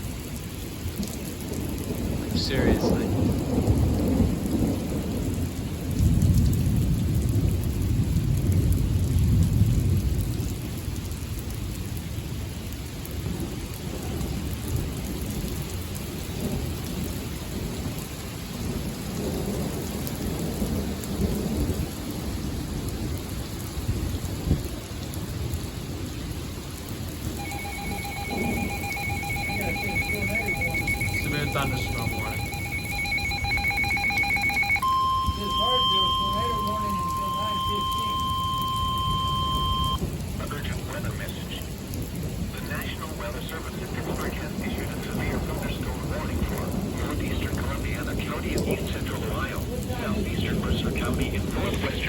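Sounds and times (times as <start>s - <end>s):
thunder rumbling: 0.0s - 12.0s, 27.1s - 40.9s, 41.6s - 52.0s
steady rain: 0.0s - 52.0s
electronic alert tone beeping: 27.4s - 40.0s.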